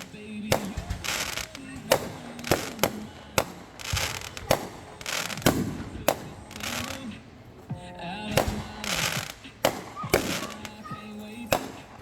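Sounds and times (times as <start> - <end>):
fireworks bangs: 0.0 - 12.0
fireworks hissing: 0.0 - 12.0.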